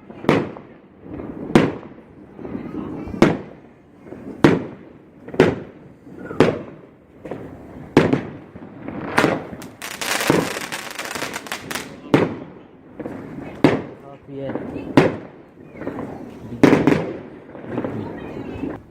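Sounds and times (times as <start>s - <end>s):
fireworks bangs: 0.0s - 18.9s
fireworks crackling: 0.0s - 18.9s.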